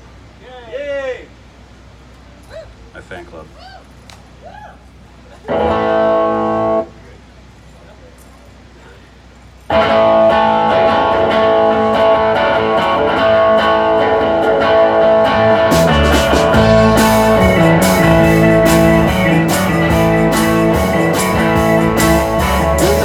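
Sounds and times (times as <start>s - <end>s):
bass guitar: 5.4s - 7.0s, 9.7s - 23.0s
guitar picking: 5.5s - 6.9s, 9.7s - 23.0s
drums with cymbals: 15.6s - 23.0s.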